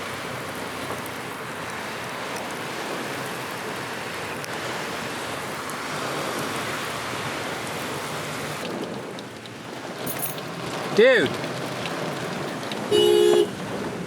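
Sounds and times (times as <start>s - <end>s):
heavy rain: 0.0s - 14.0s
raindrop ticks: 2.2s - 3.8s, 8.6s - 14.0s.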